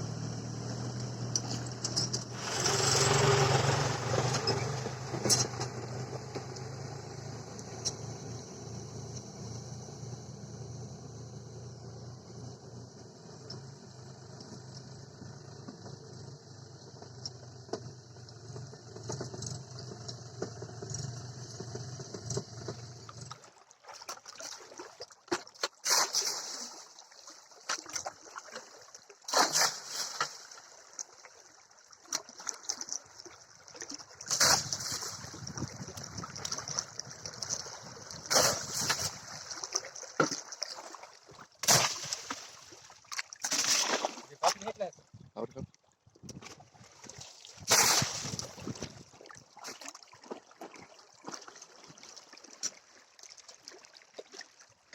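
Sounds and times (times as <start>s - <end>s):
water splashing and sloshing: 17.7s - 54.9s.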